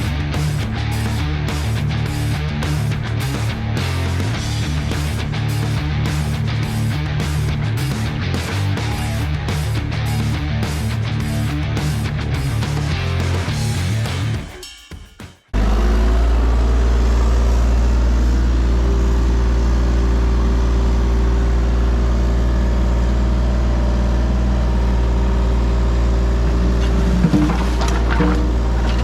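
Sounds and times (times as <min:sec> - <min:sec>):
diesel engine running: 0:00.0 - 0:14.4, 0:15.6 - 0:29.0.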